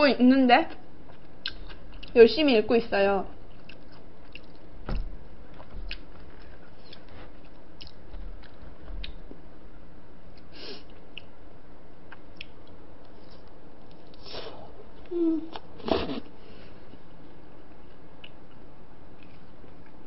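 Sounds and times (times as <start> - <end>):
steady low hum: 0.0 - 20.0
chewing mouth sounds: 3.5 - 4.7.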